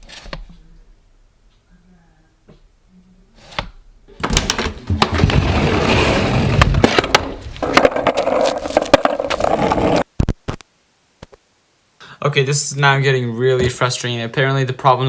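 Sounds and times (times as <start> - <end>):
skateboard wheels rolling on pavement: 5.0 - 10.1.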